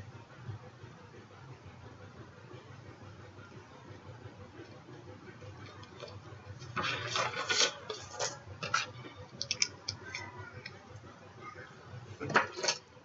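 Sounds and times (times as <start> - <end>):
card stock rubbing and sliding: 6.7 - 8.4.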